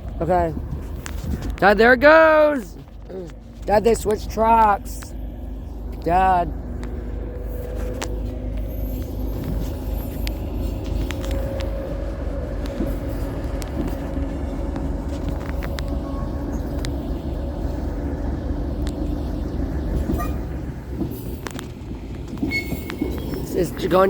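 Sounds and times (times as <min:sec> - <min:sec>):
train rumbling along track: 0:00.0 - 0:24.0
faint engine drone: 0:02.6 - 0:24.0.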